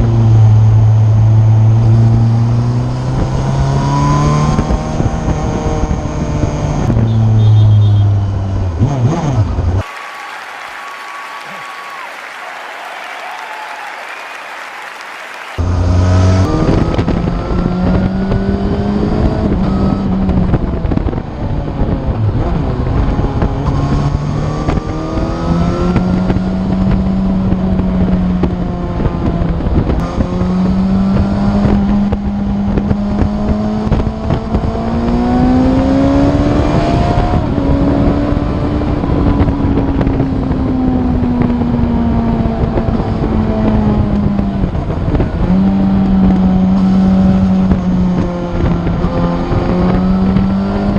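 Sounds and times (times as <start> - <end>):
wind on microphone: 16.4 - 50.9.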